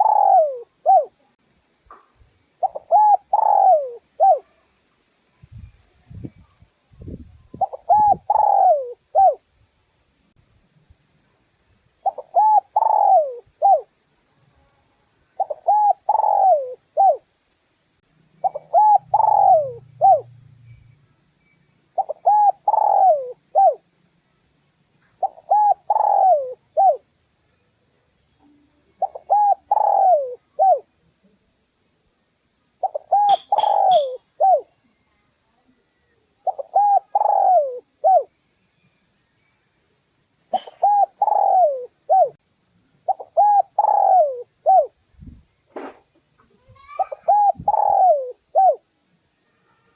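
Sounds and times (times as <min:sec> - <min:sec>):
dove cooing: 0:00.0 - 0:01.2, 0:02.6 - 0:04.6, 0:07.5 - 0:09.4, 0:12.0 - 0:13.9, 0:15.4 - 0:17.3, 0:18.4 - 0:20.4, 0:22.0 - 0:23.8, 0:25.2 - 0:27.1, 0:29.0 - 0:30.9, 0:32.8 - 0:34.8, 0:36.4 - 0:38.3, 0:40.5 - 0:42.4, 0:43.1 - 0:45.0, 0:46.8 - 0:48.8.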